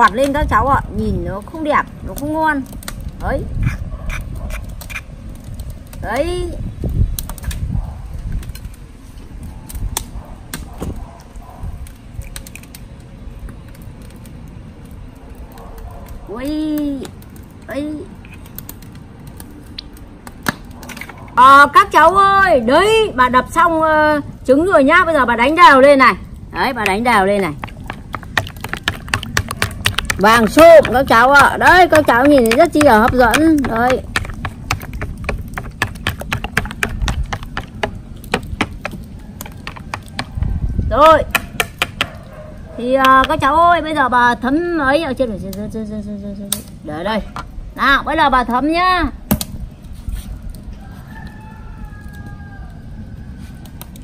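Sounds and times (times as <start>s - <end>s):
eggshells cracking: 26.4s - 40.5s, 41.3s - 42.3s.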